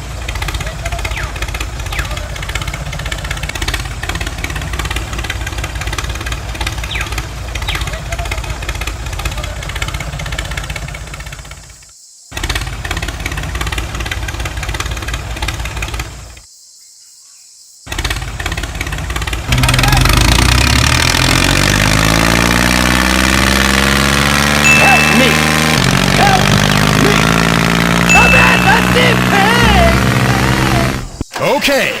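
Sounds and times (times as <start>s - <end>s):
toy tractor motor rattling buzz: 12.3s - 16.5s, 17.9s - 31.2s.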